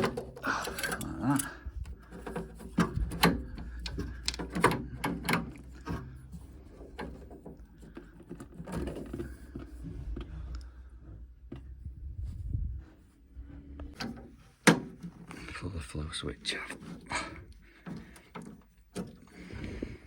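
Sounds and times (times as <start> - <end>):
plastic parts clicking and knocking: 0.0 - 10.6, 13.9 - 15.5, 16.5 - 19.4.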